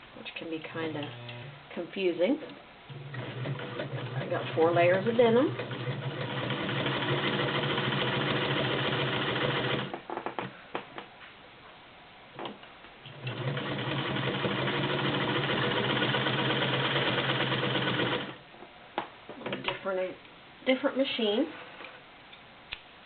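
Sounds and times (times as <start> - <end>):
sewing machine stitching: 2.9 - 10.0, 13.1 - 18.4.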